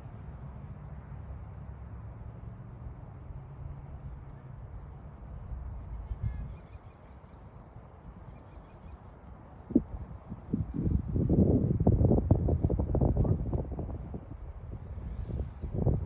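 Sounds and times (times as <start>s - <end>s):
wind rumble on microphone: 4.0s - 6.8s, 9.6s - 16.0s.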